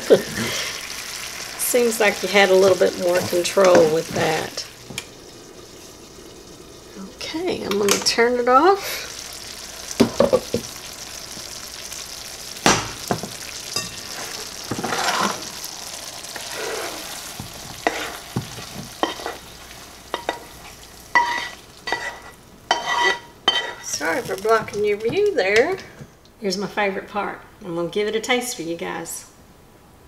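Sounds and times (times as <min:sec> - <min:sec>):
spatula scraping a pan: 0:00.0 - 0:04.6, 0:13.4 - 0:24.9
butter sizzling in a skillet: 0:00.0 - 0:25.7
cookware knocks: 0:10.0 - 0:10.7, 0:12.7 - 0:14.0.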